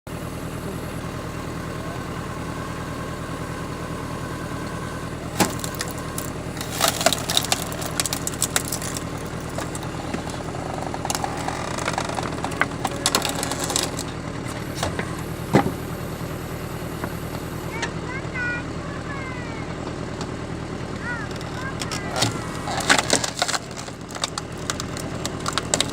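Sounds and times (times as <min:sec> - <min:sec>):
tractor engine running: 0:00.0 - 0:25.9
wood cracking and splintering: 0:00.9 - 0:16.0, 0:21.2 - 0:25.9.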